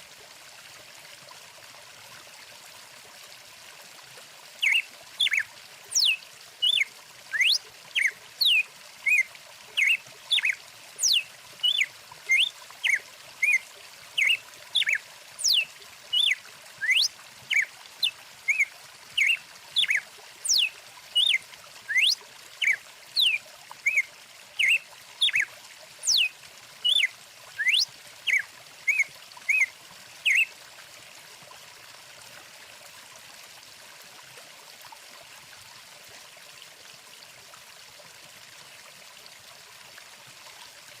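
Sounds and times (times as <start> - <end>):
running stream: 0.0 - 41.0
songbirds chirping: 4.6 - 6.8, 7.4 - 13.6, 14.2 - 15.6, 16.2 - 24.0.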